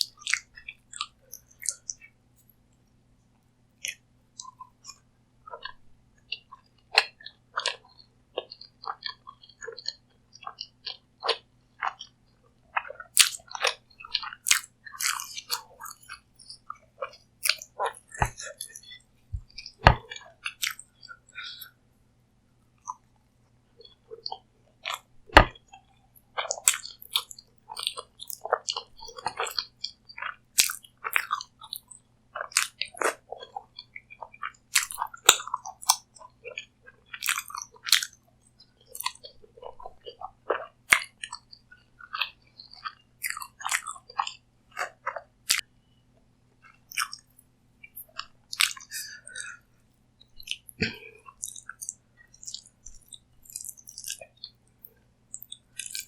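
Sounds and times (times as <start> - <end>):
chewing crunchy food: 0.0 - 2.5, 3.8 - 21.8, 22.7 - 23.1, 23.8 - 45.7, 46.6 - 56.0.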